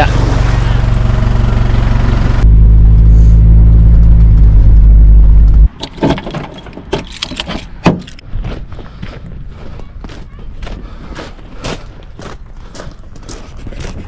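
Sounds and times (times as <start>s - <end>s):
car engine droning: 0.0s - 5.8s
keys jangling: 6.4s - 7.7s.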